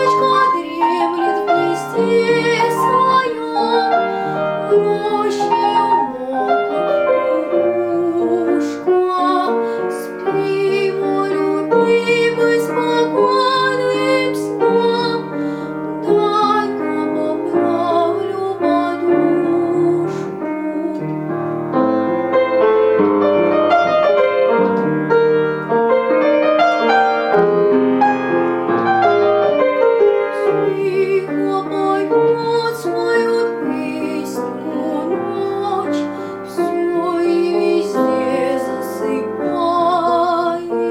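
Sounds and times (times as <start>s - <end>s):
young female voice singing: 0.0s - 21.1s, 30.4s - 40.9s
piano accompaniment: 0.0s - 40.9s.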